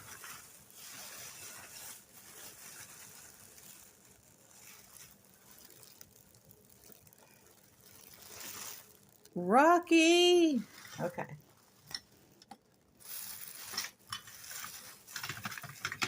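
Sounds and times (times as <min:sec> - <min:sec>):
buttons rustling in hand: 0:10.6 - 0:16.0.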